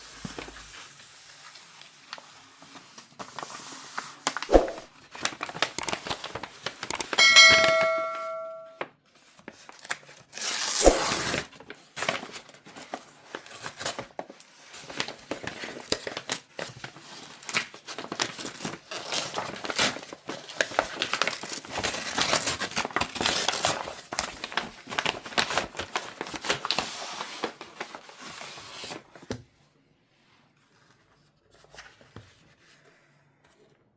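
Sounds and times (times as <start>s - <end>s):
short ringing tone: 7.0s - 8.8s.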